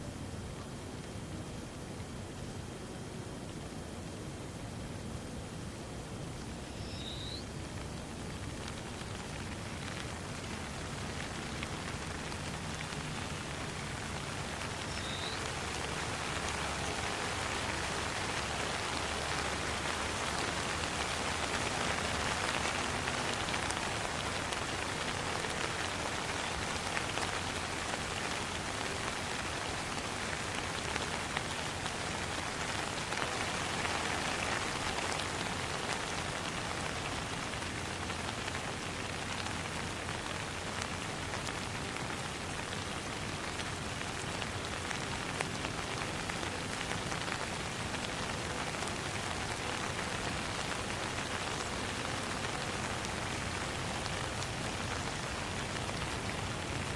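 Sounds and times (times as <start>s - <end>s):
rain falling: 0.0s - 56.9s.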